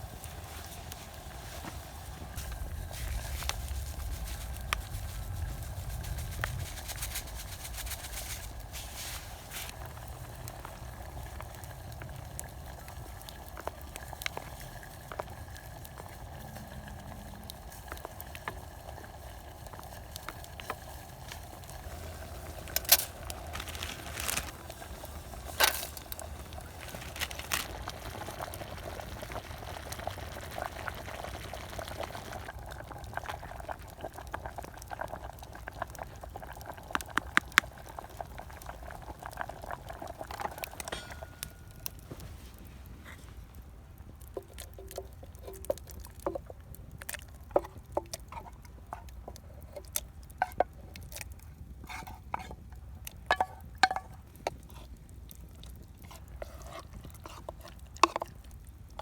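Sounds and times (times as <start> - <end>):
stew bubbling in a mess tin: 0.0 - 59.0
sharp clicks and pops: 36.8 - 37.8.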